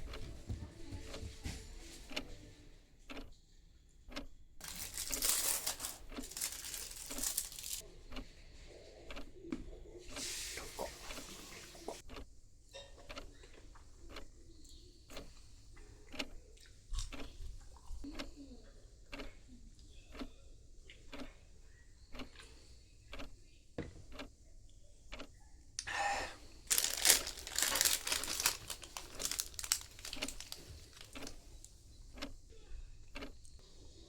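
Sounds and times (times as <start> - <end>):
rustling crinkling noise: 4.6 - 7.8, 26.6 - 32.3.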